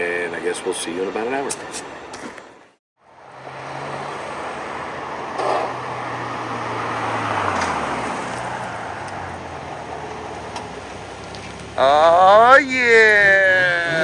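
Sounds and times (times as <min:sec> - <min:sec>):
traffic and road noise: 0:00.0 - 0:14.0
car engine running: 0:05.4 - 0:12.8.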